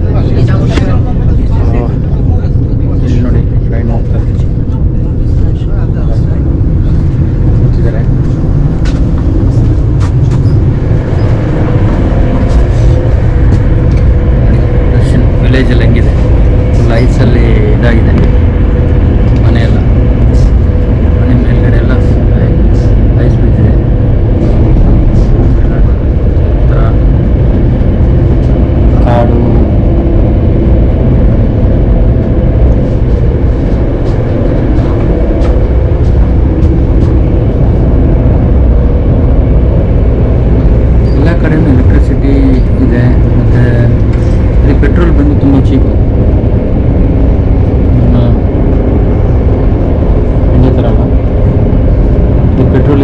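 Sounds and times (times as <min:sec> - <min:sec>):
train rumbling inside carriage: 0:00.0 - 0:53.0.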